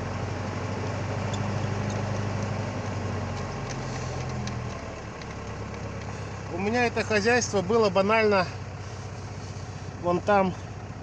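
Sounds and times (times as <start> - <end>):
truck diesel engine idling: 0.0 - 5.0.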